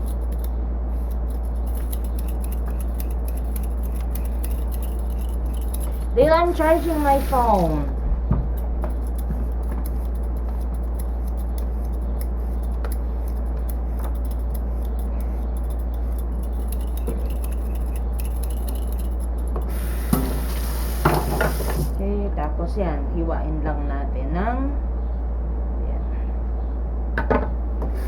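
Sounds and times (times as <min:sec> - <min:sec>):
kitchen items clicking and rubbing: 0:00.0 - 0:07.9, 0:08.6 - 0:22.0
steady low hum: 0:00.0 - 0:28.0
higher hiss: 0:06.5 - 0:07.8, 0:19.7 - 0:22.0.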